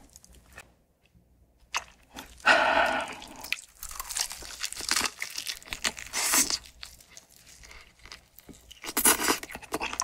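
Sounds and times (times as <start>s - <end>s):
crackly chewing: 0.0s - 10.0s
crunchy bite: 1.7s - 10.0s.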